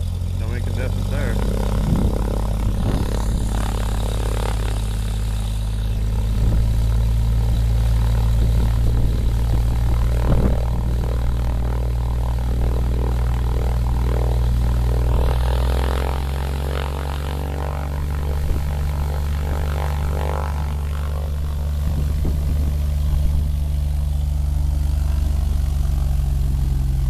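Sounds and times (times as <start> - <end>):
light aircraft engine droning: 0.0 - 27.0.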